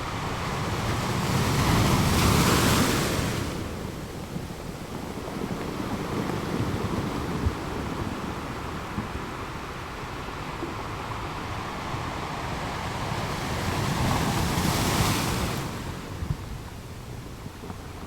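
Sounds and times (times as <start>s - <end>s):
wave breaking on shore: 0.0s - 16.6s
low rumble of surf: 0.0s - 18.0s.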